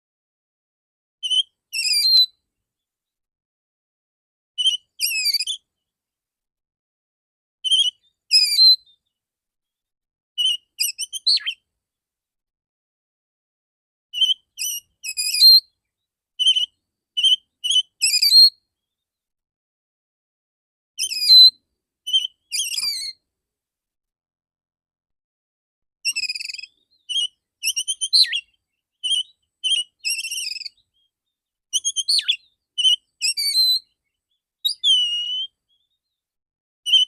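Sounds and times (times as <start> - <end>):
bird singing whistled notes: 1.2 - 2.4, 4.6 - 5.7, 7.6 - 9.2, 10.4 - 11.7, 14.2 - 15.8, 16.4 - 18.7, 21.0 - 23.2, 26.0 - 36.2.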